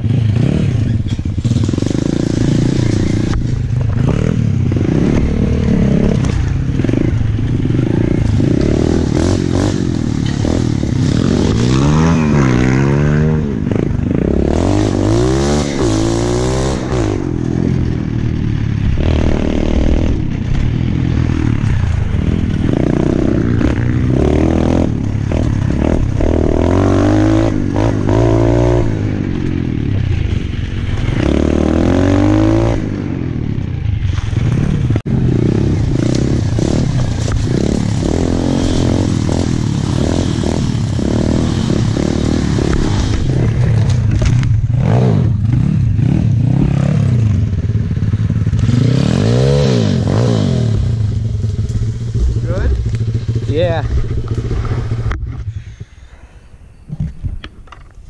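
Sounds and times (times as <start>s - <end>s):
motorbike engine revving: 0.0s - 56.4s.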